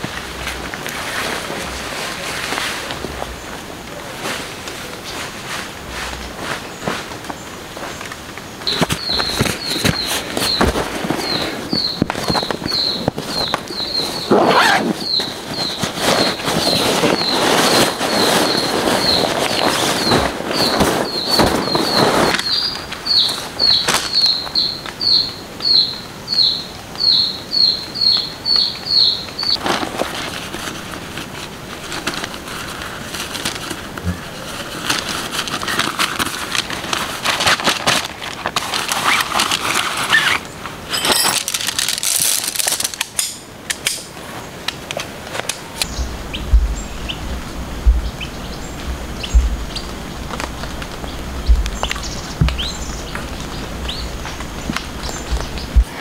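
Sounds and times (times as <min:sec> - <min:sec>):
tent fabric rustling: 0:00.0 - 0:24.4, 0:29.5 - 0:43.3
bird chirping: 0:06.6 - 0:29.6, 0:45.8 - 0:56.0
low rumble: 0:45.8 - 0:56.0
dull thumps: 0:46.0 - 0:56.0.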